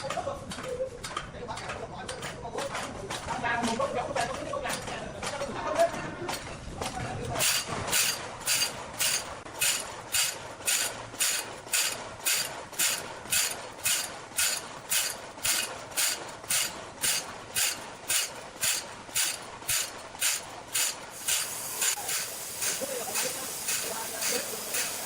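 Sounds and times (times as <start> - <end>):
machine hissing strokes: 7.4 - 25.0.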